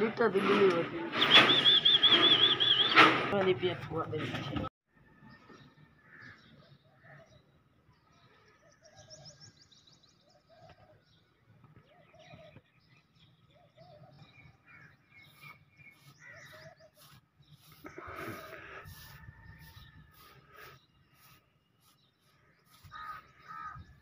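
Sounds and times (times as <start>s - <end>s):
faint birds calling: 1.2s - 3.0s, 5.3s - 24.0s
bird trill: 1.2s - 3.1s, 11.9s - 17.8s.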